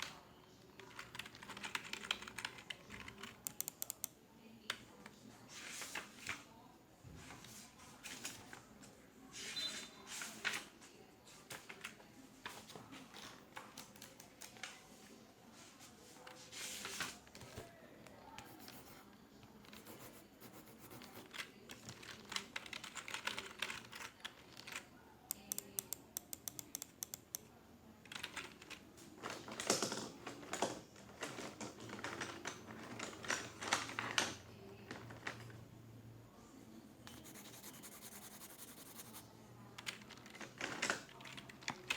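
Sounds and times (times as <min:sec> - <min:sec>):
typing on computer keyboard: 0:00.8 - 0:04.2, 0:13.4 - 0:14.7, 0:19.6 - 0:27.5, 0:28.1 - 0:28.8, 0:39.8 - 0:41.9.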